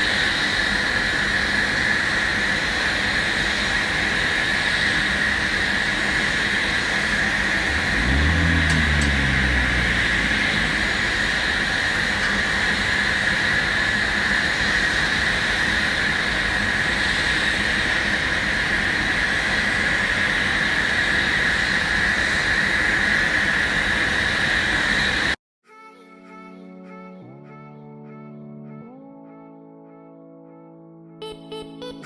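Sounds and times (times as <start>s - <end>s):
low hum falling in pitch: 7.6s - 12.4s
aircraft engine whine and rush: 8.6s - 25.4s.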